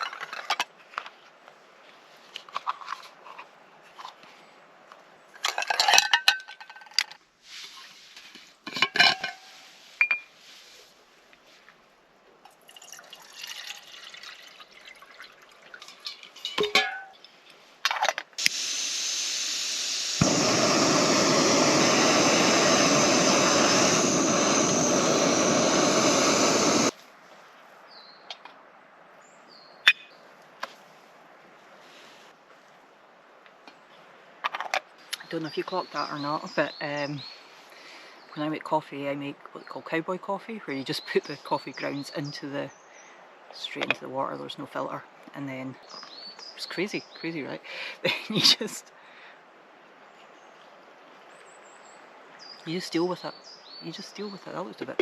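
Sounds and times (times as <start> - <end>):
metal cookware clinking: 8.7 - 10.2, 16.0 - 17.1
loud rushing hiss: 18.4 - 27.0.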